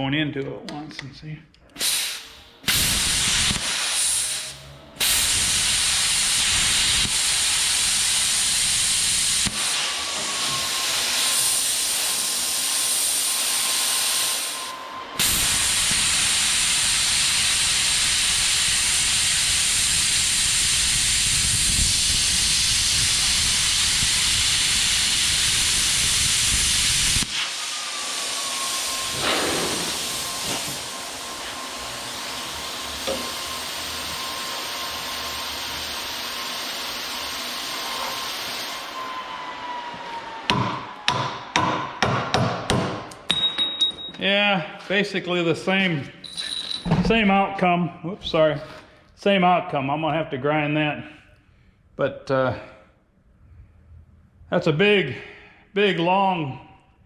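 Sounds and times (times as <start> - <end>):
plasma cutter hissing: 1.8 - 38.9.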